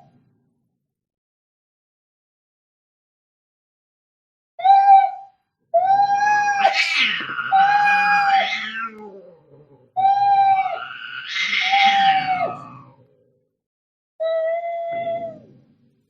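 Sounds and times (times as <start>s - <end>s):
cats yowling and screeching: 5.8s - 13.1s.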